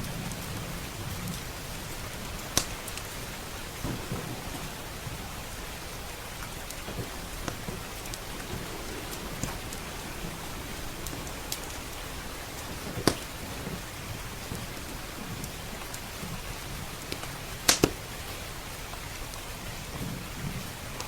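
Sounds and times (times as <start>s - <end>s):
steady rain: 0.0s - 21.0s
wood fire popping: 0.0s - 21.0s.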